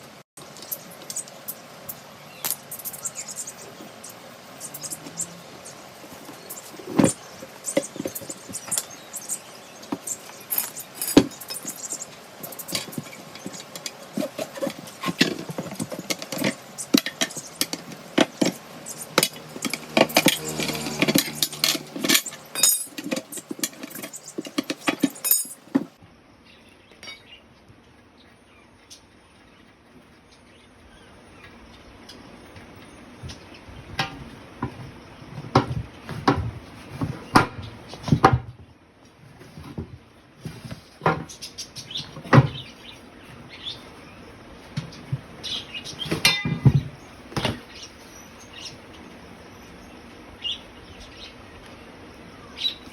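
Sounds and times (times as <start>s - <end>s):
metallic clinks of hand tools: 10.1s - 25.9s.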